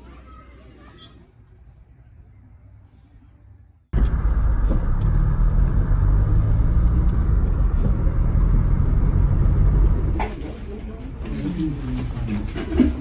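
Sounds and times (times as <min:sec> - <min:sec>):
low rumble of moving car: 0:03.9 - 0:12.6.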